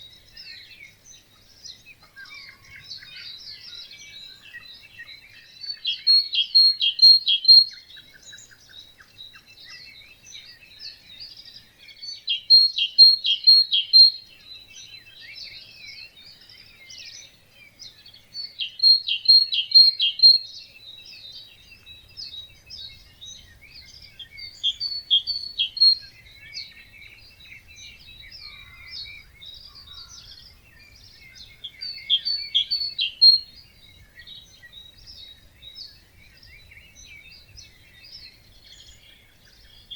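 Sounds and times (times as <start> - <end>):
bird singing short loud song: 0.0 - 39.9
fainter bird chirping: 18.4 - 20.4.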